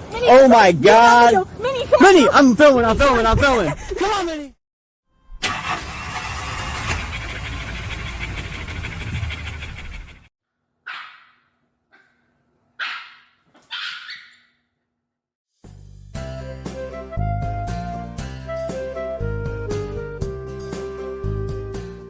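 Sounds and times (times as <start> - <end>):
dog barking: 10.8 - 12.2, 12.8 - 14.5.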